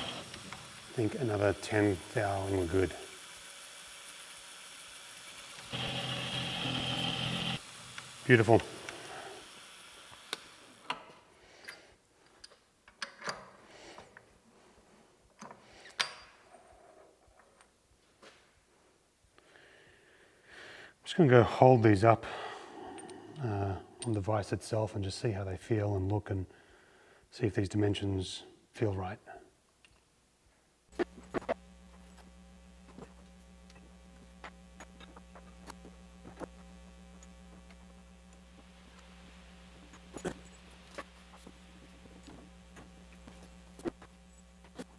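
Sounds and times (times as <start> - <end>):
steady low hum: 0.0 - 10.8, 30.9 - 44.9.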